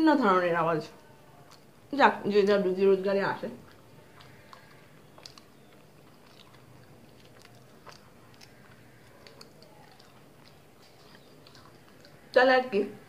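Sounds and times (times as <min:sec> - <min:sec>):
soft chewing mouth clicks: 0:01.0 - 0:01.9, 0:03.5 - 0:12.4.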